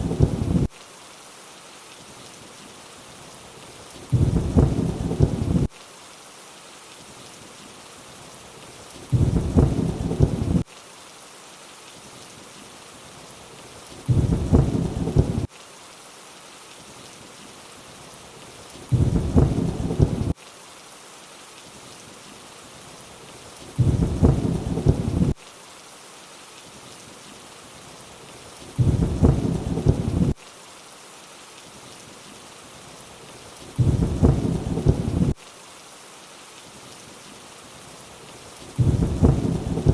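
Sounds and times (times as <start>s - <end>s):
deep thunder rumbles: 0.0s - 0.7s, 4.1s - 5.7s, 9.1s - 10.6s, 14.1s - 15.5s, 18.9s - 20.4s, 23.8s - 25.4s, 28.8s - 30.4s, 33.8s - 35.4s, 38.8s - 39.9s
steady rainfall: 0.0s - 39.9s.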